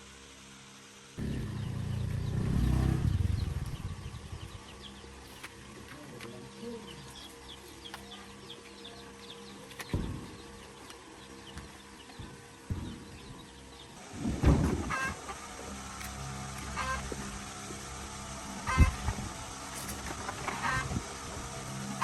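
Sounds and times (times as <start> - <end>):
low rumble: 1.2 - 4.8
small birds chirping: 1.2 - 14.0.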